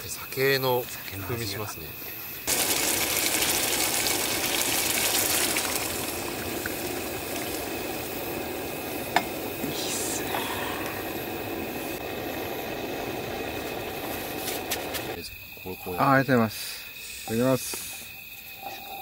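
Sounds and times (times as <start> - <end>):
food sizzling in a pan: 2.5 - 15.2.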